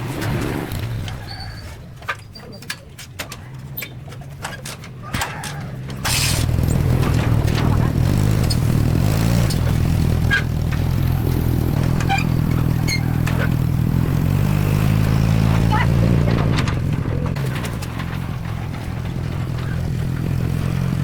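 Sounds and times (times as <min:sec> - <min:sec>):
small engine running: 0:06.0 - 0:21.0.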